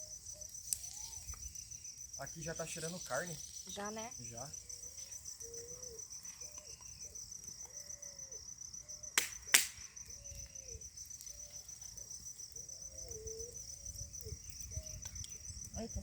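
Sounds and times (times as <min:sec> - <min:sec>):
crickets chirring: 0:00.0 - 0:16.0
sharp clicks: 0:09.2 - 0:09.8.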